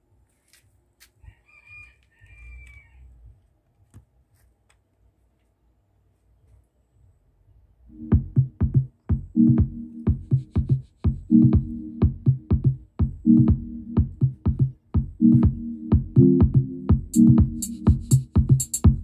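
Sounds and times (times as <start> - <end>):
electronic dance music: 7.9 - 19.0.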